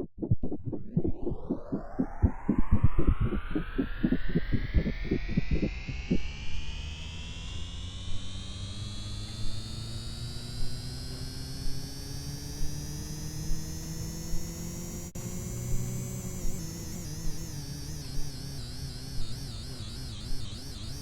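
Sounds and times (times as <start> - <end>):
low hum: 0.0 - 20.4
washing machine motor whining: 0.2 - 6.2.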